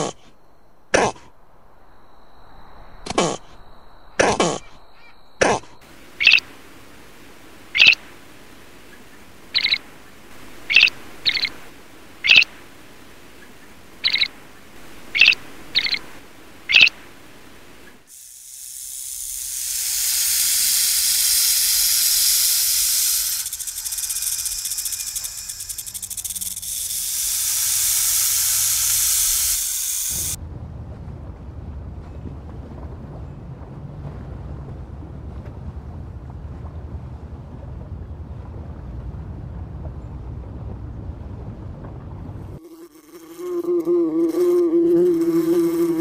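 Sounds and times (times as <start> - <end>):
snake hissing: 2.5 - 4.8, 5.4 - 6.4, 7.6 - 8.4, 9.4 - 13.0, 14.0 - 30.4
bird giving short high calls: 6.2 - 6.4, 7.8 - 8.0, 9.6 - 9.8, 10.7 - 11.6, 14.0 - 14.3, 15.1 - 16.1.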